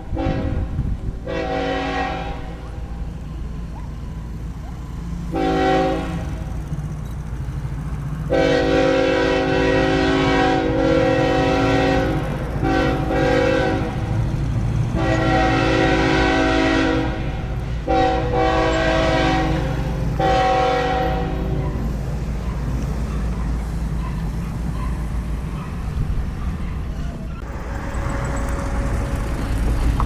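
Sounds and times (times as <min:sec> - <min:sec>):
low train rumble: 0:00.0 - 0:30.0
locomotive air horn blasts: 0:00.1 - 0:02.9, 0:05.3 - 0:06.7, 0:08.3 - 0:14.2, 0:14.9 - 0:21.6, 0:27.4 - 0:29.8.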